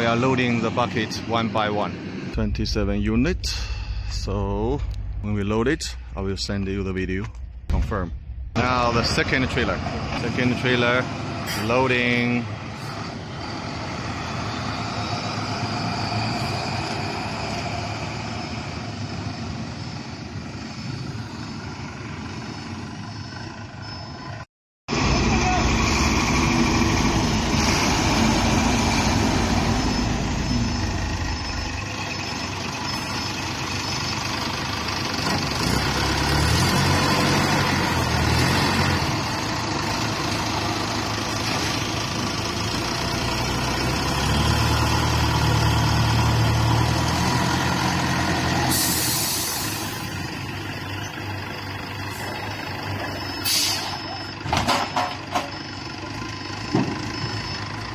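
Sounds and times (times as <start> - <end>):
diesel truck engine revving: 8.5 - 57.9
faint reversing beep: 22.6 - 24.4, 28.9 - 35.0, 48.9 - 57.9
air brake hiss: 48.7 - 50.0, 53.4 - 54.0.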